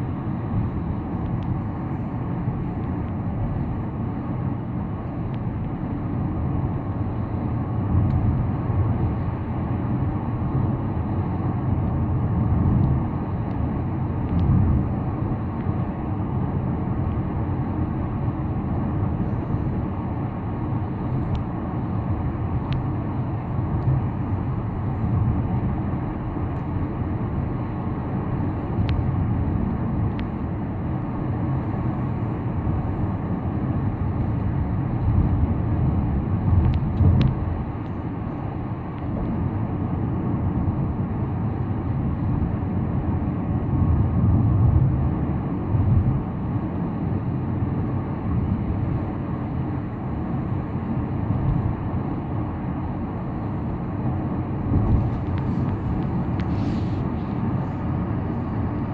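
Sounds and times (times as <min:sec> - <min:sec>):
car tyre and engine rumble: 0:00.0 - 0:58.9.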